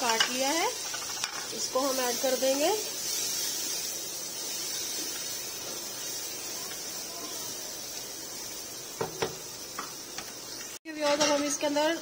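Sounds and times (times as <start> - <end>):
masala sizzling in a pot: 0.0 - 12.0.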